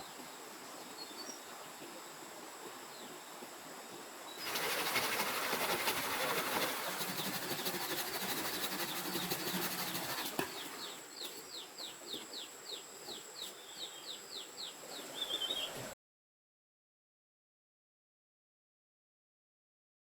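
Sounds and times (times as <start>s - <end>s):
faint high insect tone: 0.0s - 16.0s.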